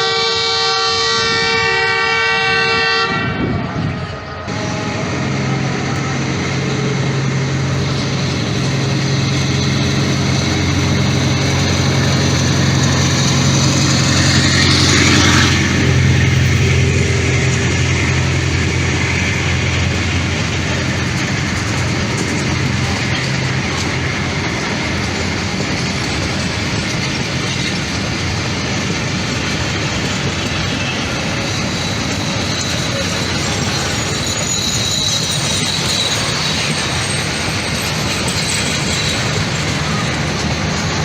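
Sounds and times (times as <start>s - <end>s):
two-tone train horn blast: 0.0s - 7.2s, 9.4s - 21.2s
locomotive engine roar: 0.0s - 41.0s
train rail noise: 0.0s - 41.0s.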